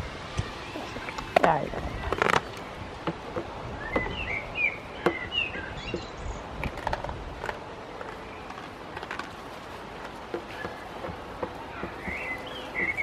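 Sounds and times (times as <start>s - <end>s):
low background noise: 0.0s - 13.0s
bird chirping: 0.4s - 6.7s, 10.3s - 13.0s.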